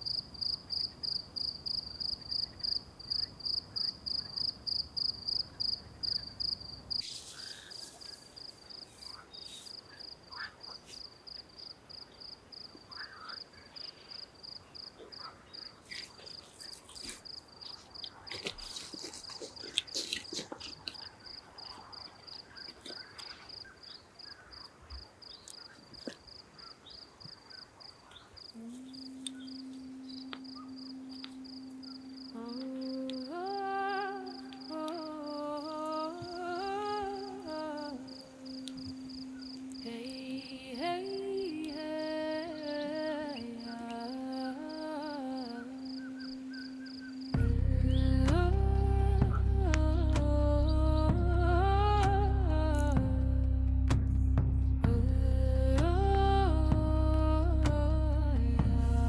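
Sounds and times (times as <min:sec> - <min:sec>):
cricket chirping: 0:00.0 - 0:49.7
clicks and crackles: 0:14.9 - 0:30.5
low steady hum: 0:47.2 - 0:59.0
low rumble: 0:47.4 - 0:59.0.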